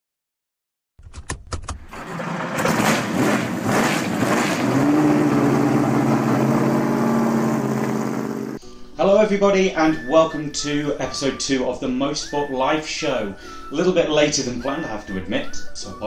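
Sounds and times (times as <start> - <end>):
car engine starting and running: 1.6 - 8.6.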